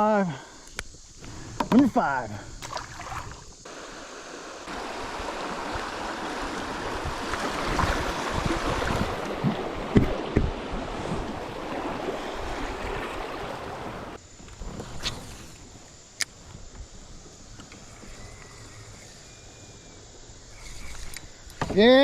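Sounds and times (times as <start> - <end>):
river water running and splashing: 2.6 - 14.2.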